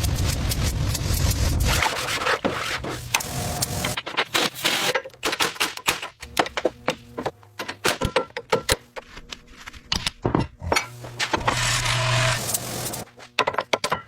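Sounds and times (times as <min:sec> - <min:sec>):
hand tools clicking and knocking: 0:03.8 - 0:09.1, 0:13.3 - 0:14.0.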